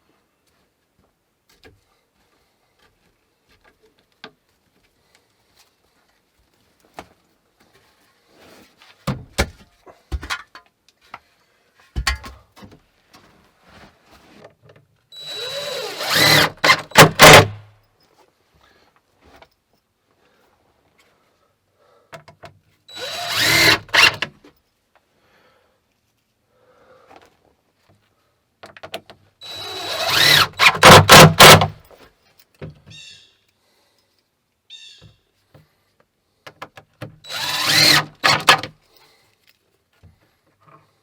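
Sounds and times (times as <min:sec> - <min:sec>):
tools knocking and clicking: 0:12.0 - 0:12.4
power drill running: 0:15.2 - 0:17.6, 0:22.9 - 0:24.3, 0:29.4 - 0:31.8, 0:37.2 - 0:38.7.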